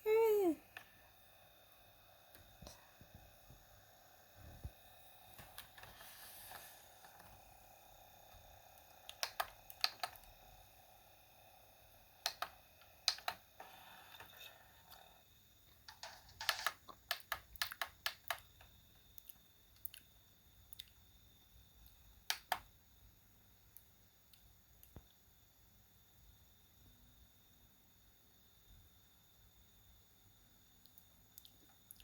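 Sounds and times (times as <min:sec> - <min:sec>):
plastic toys clicking and tapping: 0:09.1 - 0:10.3, 0:12.2 - 0:13.4, 0:15.9 - 0:18.7.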